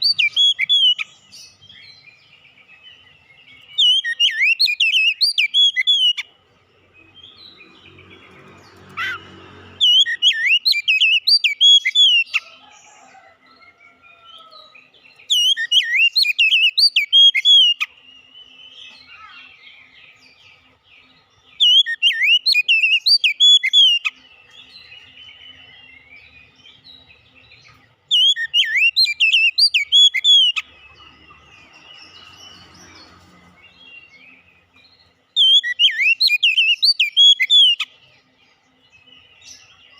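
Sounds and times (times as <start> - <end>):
bird singing whistled phrases: 0.0 - 1.1, 3.5 - 6.3, 9.8 - 12.4, 15.3 - 19.5, 21.6 - 26.3, 28.1 - 30.7, 35.4 - 37.9
bird chirps: 0.0 - 39.9.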